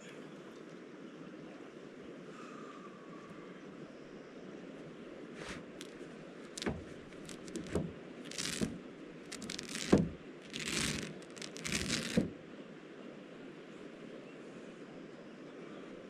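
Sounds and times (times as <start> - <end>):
material rustling and crinkling: 5.4 - 12.4.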